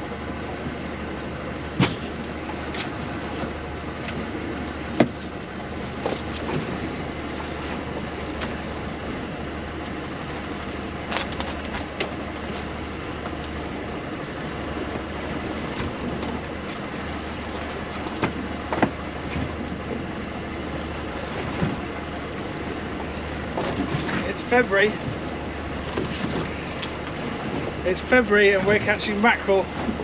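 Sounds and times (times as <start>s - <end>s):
boat engine hum: 0.0s - 30.0s.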